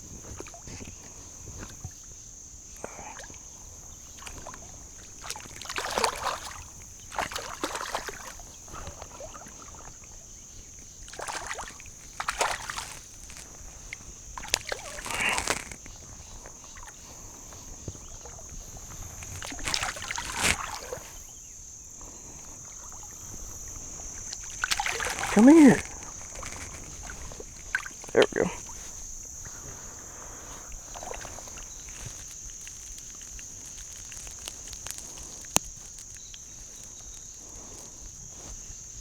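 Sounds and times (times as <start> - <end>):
water splashing and sloshing: 0.0 - 39.0.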